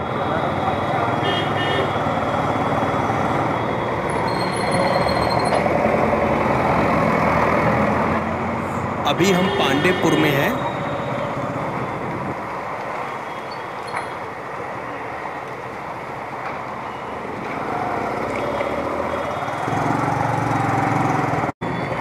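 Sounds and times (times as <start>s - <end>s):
road and wind noise: 0.0s - 22.0s
motorcycle engine: 18.0s - 21.5s.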